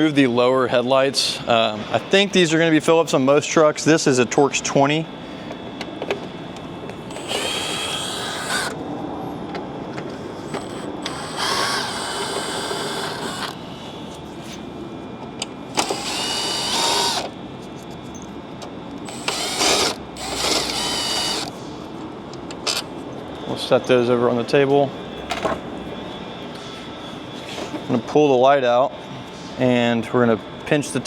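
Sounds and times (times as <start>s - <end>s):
cordless drill motor whine: 7.0s - 8.9s, 10.1s - 14.1s, 15.7s - 17.4s, 19.0s - 21.6s.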